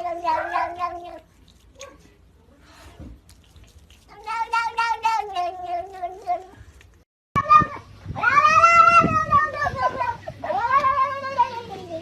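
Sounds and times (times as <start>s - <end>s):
cat yowling and meowing: 0.0s - 1.3s, 4.1s - 6.6s, 7.4s - 12.0s.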